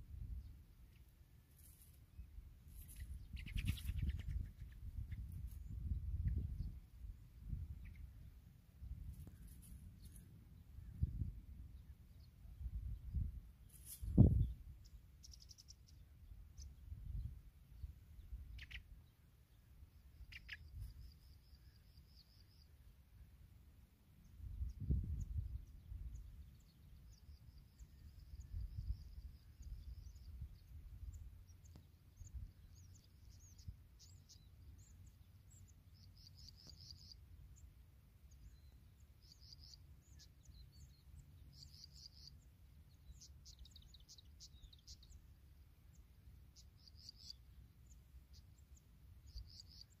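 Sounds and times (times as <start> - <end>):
high-pitched bird chirps: 2.9 - 5.2, 18.5 - 18.9, 20.2 - 20.9.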